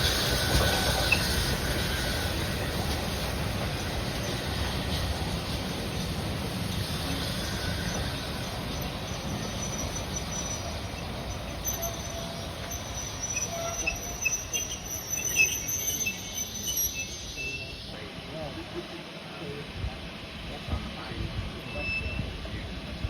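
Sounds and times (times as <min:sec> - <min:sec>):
train rumbling on rails: 0:00.0 - 0:23.0
high-pitched wheel squeal: 0:07.0 - 0:17.9, 0:21.6 - 0:22.3.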